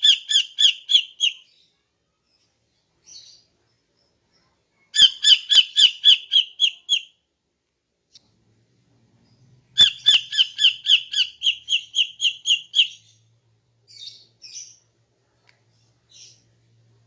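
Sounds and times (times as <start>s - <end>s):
bird calling sharp notes: 9.8s - 13.0s.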